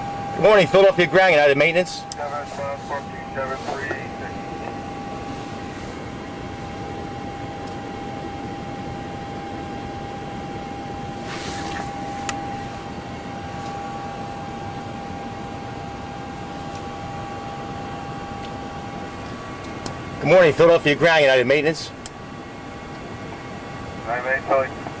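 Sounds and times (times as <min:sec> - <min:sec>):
fan and air-conditioning noise: 0:00.0 - 0:25.0
brief hiss: 0:11.2 - 0:12.0.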